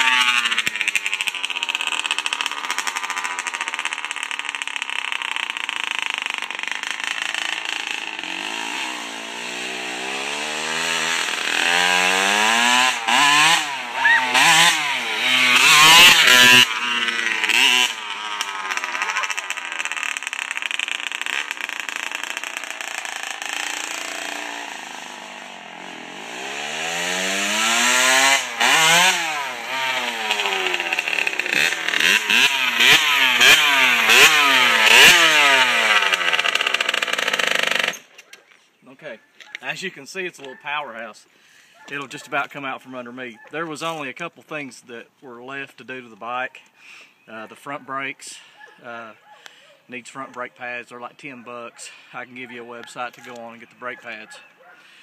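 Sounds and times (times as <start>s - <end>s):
two-stroke motorcycle engine revving: 0.0s - 38.2s.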